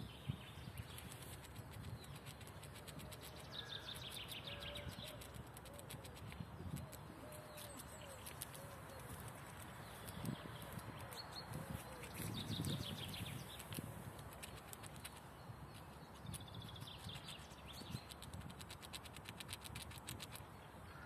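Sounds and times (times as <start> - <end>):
small bird trilling: 1.9 - 15.2.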